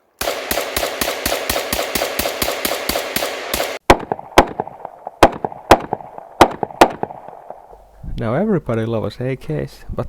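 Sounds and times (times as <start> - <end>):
rifle shots: 0.2 - 7.7.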